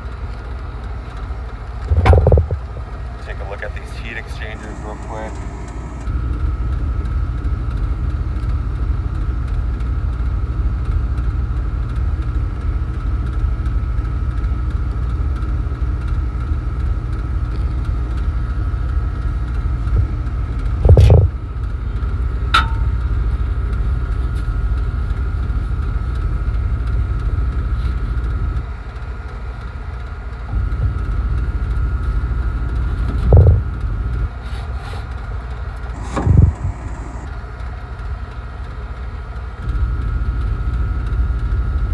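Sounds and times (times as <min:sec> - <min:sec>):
low machinery rumble: 0:00.0 - 0:34.5, 0:35.1 - 0:37.6
faint constant whine: 0:00.0 - 0:41.9
loud knock: 0:01.9 - 0:02.8, 0:22.6 - 0:23.1, 0:36.0 - 0:37.3
sharp click: 0:04.3 - 0:06.1, 0:22.6 - 0:23.2, 0:35.9 - 0:37.3.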